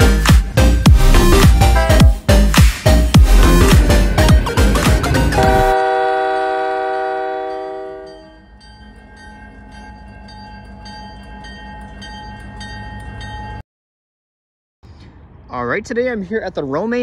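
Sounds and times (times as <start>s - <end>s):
diesel locomotive rumble: 0.0s - 13.6s
locomotive horn chord: 3.2s - 8.4s
railroad crossing bell dinging: 5.0s - 13.6s.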